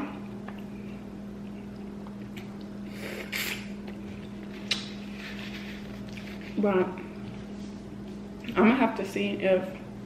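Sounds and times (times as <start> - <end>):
steady low hum: 0.0 - 10.0
wet sucking noise: 2.9 - 3.8.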